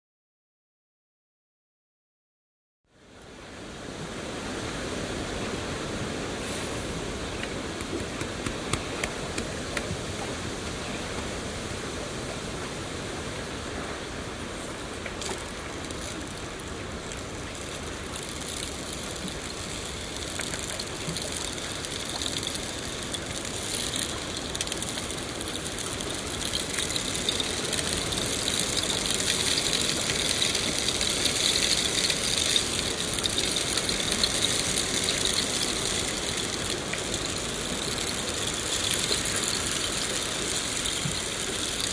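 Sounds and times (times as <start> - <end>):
steady rainfall: 3.2 - 41.9
raindrop ticks: 15.0 - 41.9.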